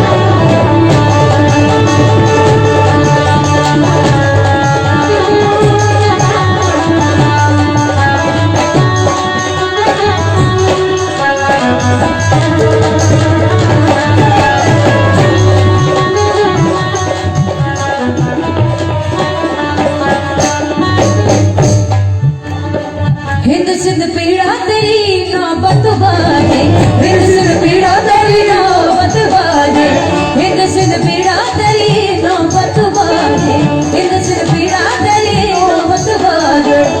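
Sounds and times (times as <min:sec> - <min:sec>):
held-note melody instrument: 0:00.0 - 0:23.4
tabla drumming: 0:00.0 - 0:37.0.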